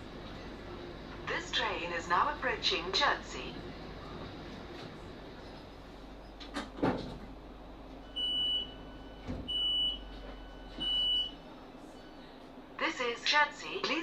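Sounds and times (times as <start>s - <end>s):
low hum inside carriage: 0.0s - 14.0s
train door warning beeps: 8.0s - 11.4s.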